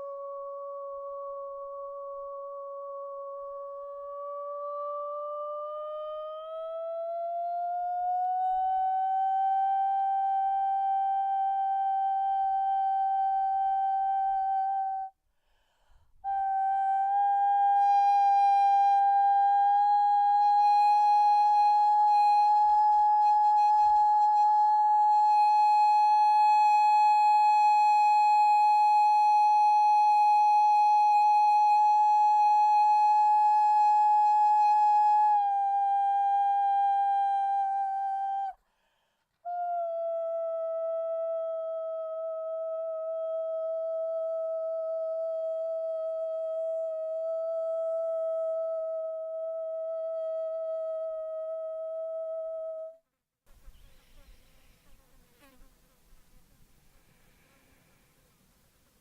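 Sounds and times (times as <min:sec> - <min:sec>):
woman singing high steady tone: 0:00.0 - 0:15.2, 0:16.2 - 0:38.6, 0:39.4 - 0:53.0.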